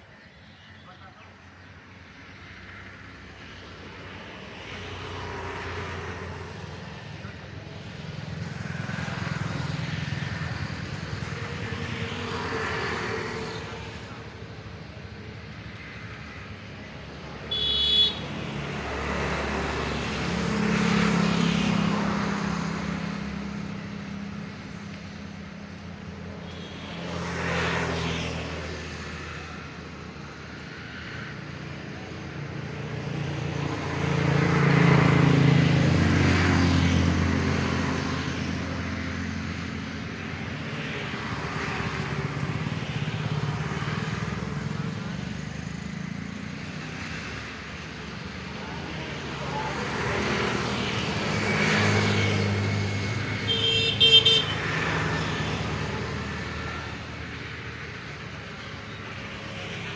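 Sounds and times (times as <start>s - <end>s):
road traffic passing: 0.0s - 59.9s
vehicle horn beep: 17.5s - 18.2s, 53.4s - 54.7s.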